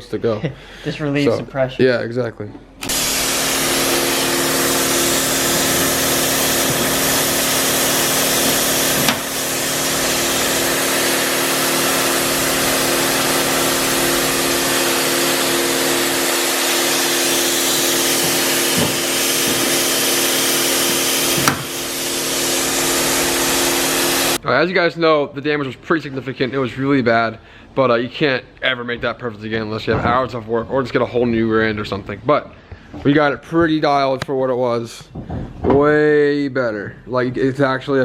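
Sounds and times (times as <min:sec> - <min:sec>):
power tool hissing with low hum: 0:02.8 - 0:24.4.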